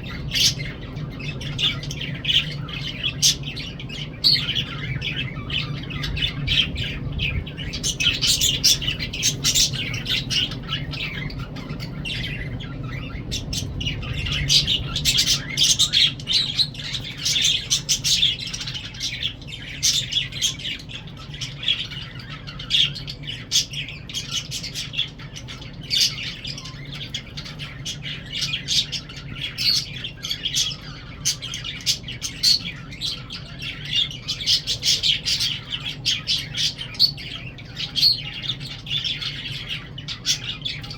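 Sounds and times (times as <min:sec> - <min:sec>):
lovebirds chirping and squawking: 0:00.0 - 0:40.9
steady low hum: 0:00.0 - 0:40.9.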